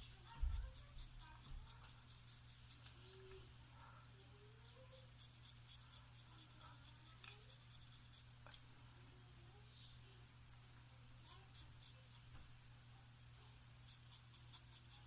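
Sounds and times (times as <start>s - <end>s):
razor scratching stubble: 0.0s - 3.2s, 4.5s - 8.6s, 11.2s - 12.4s, 13.5s - 15.0s
steady low hum: 0.0s - 15.0s.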